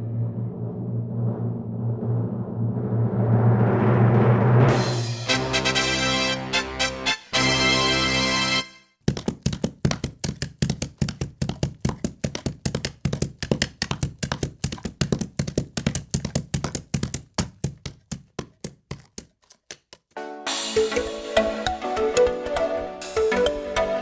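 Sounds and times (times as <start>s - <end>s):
horse hooves striking ground: 9.0s - 20.2s.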